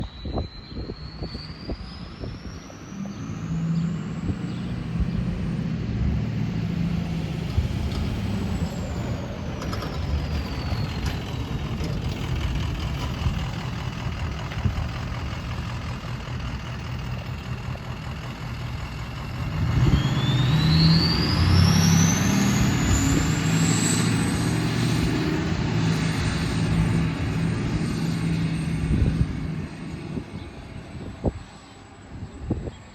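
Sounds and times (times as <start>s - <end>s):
diesel engine rumble: 0.0s - 32.9s.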